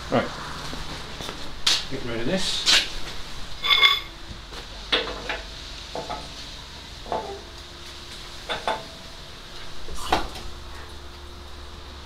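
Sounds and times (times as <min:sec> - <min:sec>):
metal objects clanking: 0:03.6 - 0:04.1.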